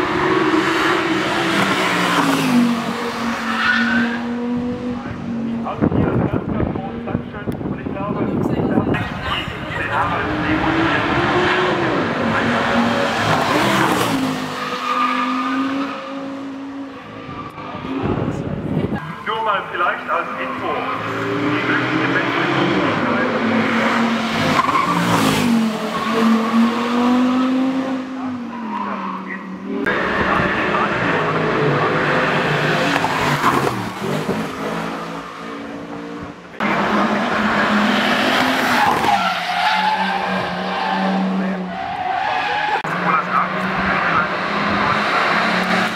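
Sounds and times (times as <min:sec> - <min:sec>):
racing car engine at full throttle: 0:00.0 - 0:45.9.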